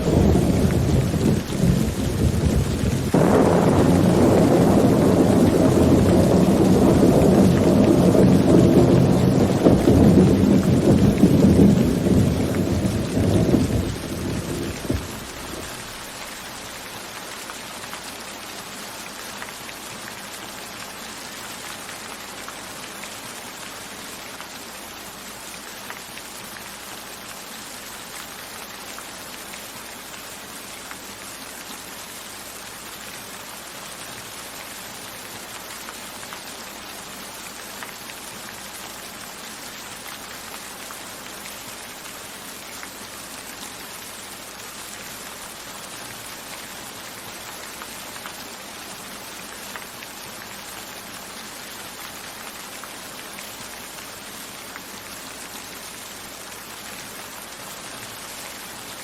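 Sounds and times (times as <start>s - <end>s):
low thunder rumble: 0.0s - 16.0s
steady rain falling: 0.0s - 59.0s.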